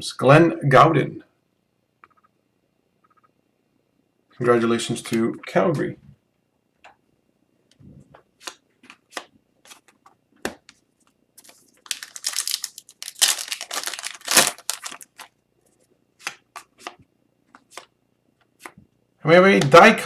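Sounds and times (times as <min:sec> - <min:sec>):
foil wrapper tearing and crinkling: 0:11.4 - 0:15.3.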